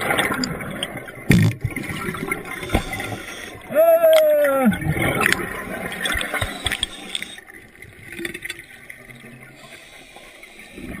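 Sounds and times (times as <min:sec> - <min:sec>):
water gurgling and sloshing: 0:00.0 - 0:11.0.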